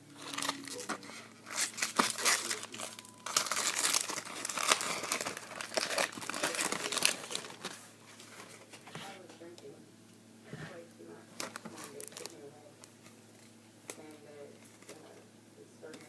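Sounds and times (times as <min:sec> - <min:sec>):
plastic wrapper tearing and crinkling: 0:00.2 - 0:07.8, 0:11.4 - 0:12.4.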